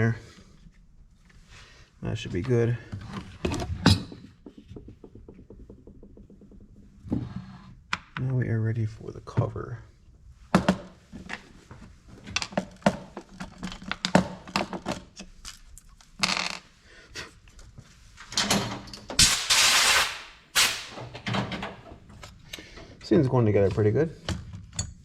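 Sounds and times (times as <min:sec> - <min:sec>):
plastic parts clicking and knocking: 0:03.1 - 0:07.0, 0:12.3 - 0:16.3.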